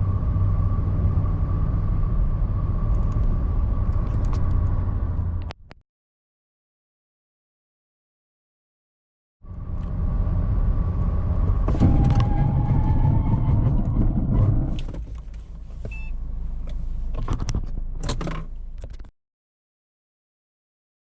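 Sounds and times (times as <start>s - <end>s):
wind and road rumble: 0.0s - 5.8s, 9.4s - 19.1s.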